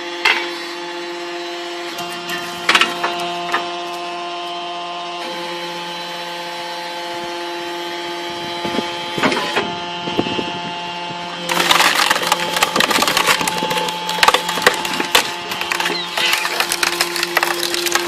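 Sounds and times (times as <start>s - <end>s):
firewood processor humming: 0.0s - 18.0s
wood cracking and splintering: 11.4s - 18.0s.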